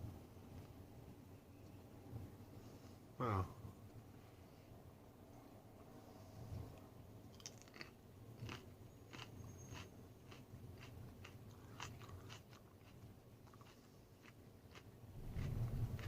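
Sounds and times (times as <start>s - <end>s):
person chewing crunchy pepper: 7.3s - 16.0s.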